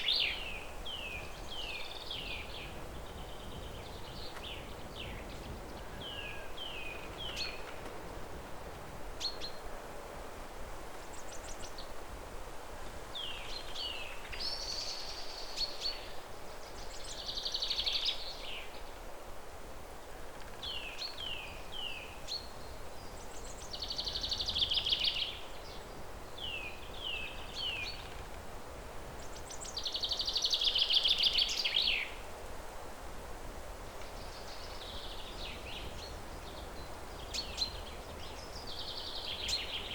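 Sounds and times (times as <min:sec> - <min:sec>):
songbird singing trills: 0:00.0 - 0:07.7, 0:20.6 - 0:28.3, 0:29.1 - 0:32.2, 0:34.0 - 0:39.9
faint outdoor hiss: 0:00.0 - 0:39.9.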